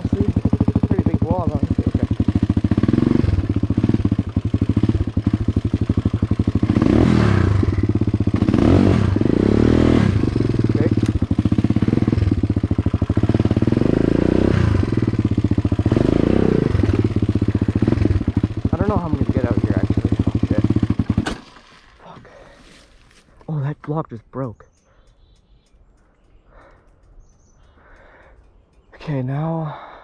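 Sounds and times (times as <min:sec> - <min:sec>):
dirt bike engine revving: 0:00.0 - 0:21.8.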